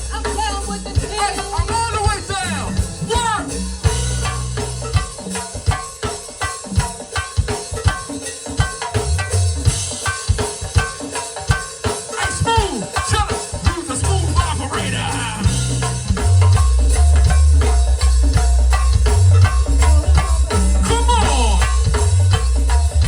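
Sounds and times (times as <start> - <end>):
deep bass notes: 0.0 - 5.0, 14.0 - 23.0
live gospel band music: 0.0 - 7.4, 11.1 - 23.0
drum kit beat: 0.0 - 23.0.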